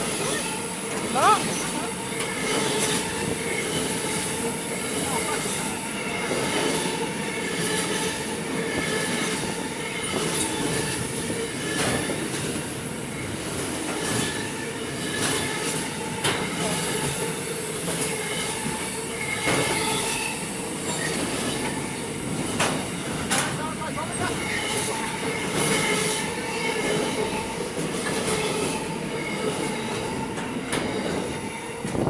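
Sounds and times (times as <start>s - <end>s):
squealing train wheels: 0.0s - 32.0s
train wheels on rails: 0.0s - 32.0s
clacks over rail joints: 6.3s - 12.7s, 13.4s - 17.3s, 21.0s - 32.0s.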